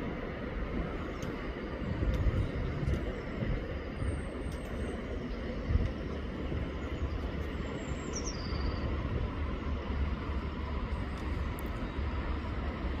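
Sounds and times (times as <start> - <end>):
bird chirp: 8.0 - 8.8.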